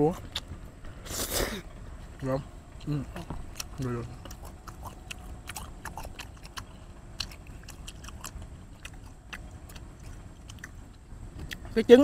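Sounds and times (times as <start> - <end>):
chewing noodles with mouth clicks: 3.6 - 11.6.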